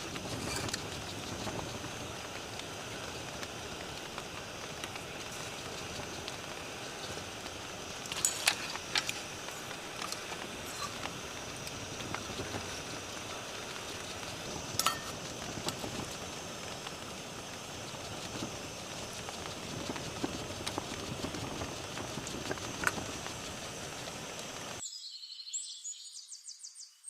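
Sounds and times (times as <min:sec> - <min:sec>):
steady rain hiss: 0:00.0 - 0:24.8.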